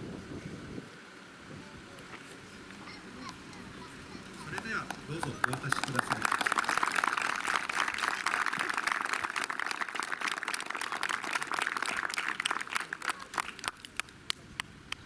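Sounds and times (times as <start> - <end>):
crowd applauding: 4.4 - 15.0.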